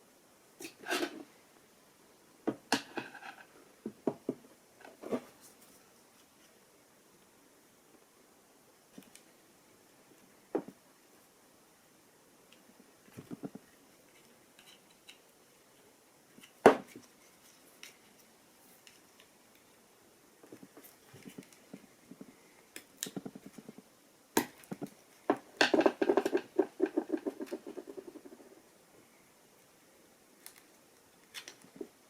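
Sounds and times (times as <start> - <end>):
clicks and knocks of hand work: 24.4 - 28.4.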